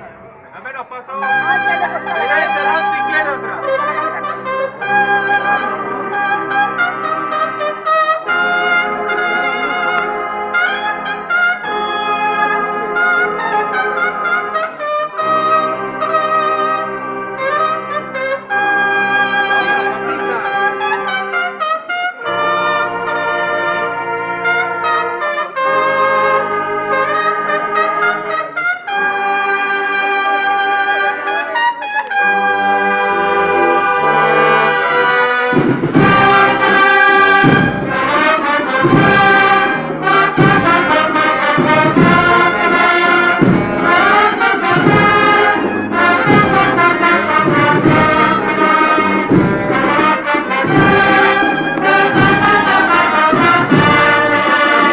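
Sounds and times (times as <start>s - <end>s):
drums beating: 0.0s - 21.4s, 32.5s - 54.9s
brass band playing a march: 0.0s - 54.9s.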